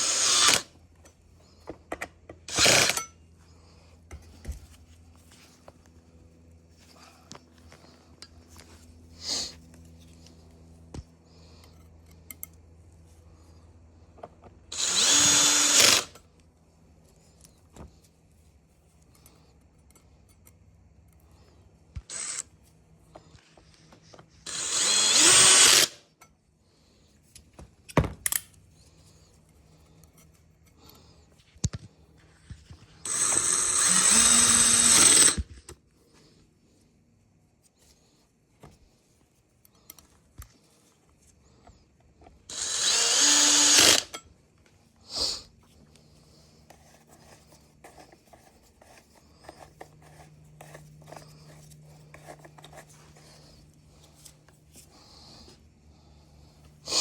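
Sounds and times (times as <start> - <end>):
cordless power tool whining: 0.0 - 0.8, 2.4 - 3.1, 14.7 - 16.2, 22.0 - 22.6, 24.4 - 26.0, 32.9 - 35.6, 42.5 - 44.2.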